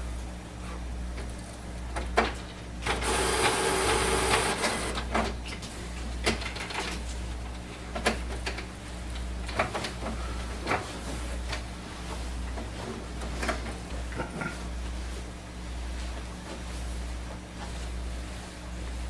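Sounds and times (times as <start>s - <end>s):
printer clicking and knocking: 2.2s - 5.4s
printer mechanism whirring: 2.8s - 5.4s.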